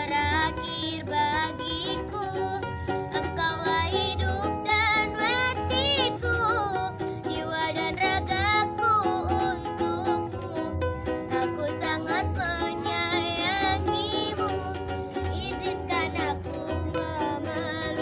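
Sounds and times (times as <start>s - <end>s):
plucked strings: 0.0s - 18.0s
children singing: 3.2s - 10.7s, 11.3s - 18.0s.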